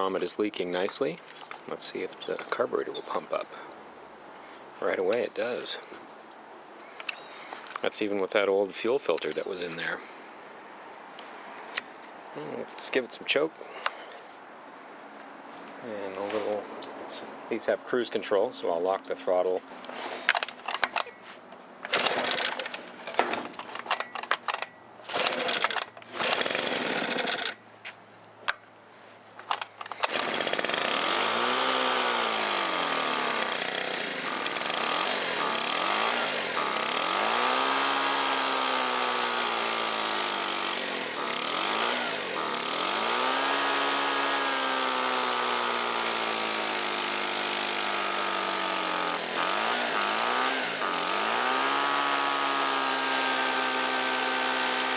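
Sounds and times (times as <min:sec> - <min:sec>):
blower engine pull-starting: 0:21.9 - 0:27.6, 0:29.5 - 0:54.9.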